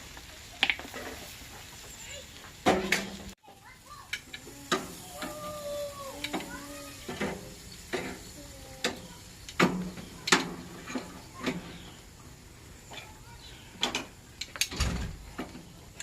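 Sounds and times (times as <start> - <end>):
cooking utensils clanking: 0.6 - 12.1.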